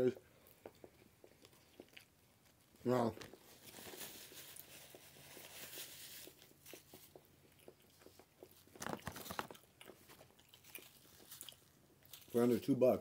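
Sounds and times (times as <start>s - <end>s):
quiet chewing: 0.0s - 12.6s
paper napkin rustling: 2.9s - 6.8s, 8.8s - 9.6s
wet mouth clicks: 6.6s - 8.9s.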